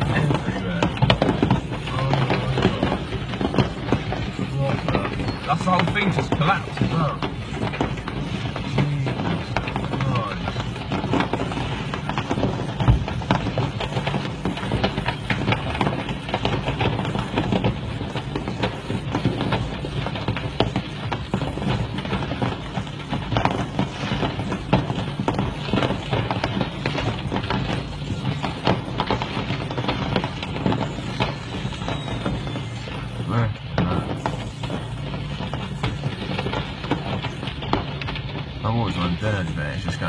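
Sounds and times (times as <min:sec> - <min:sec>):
fireworks crackling and popping: 0:00.0 - 0:40.0
loud firework bang: 0:00.0 - 0:40.0.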